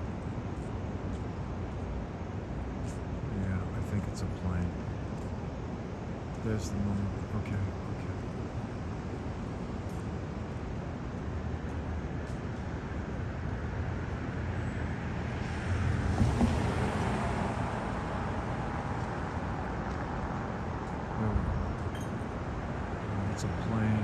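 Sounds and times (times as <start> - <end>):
city street traffic noise: 0.0 - 24.0
vehicle passing close by: 15.3 - 19.6.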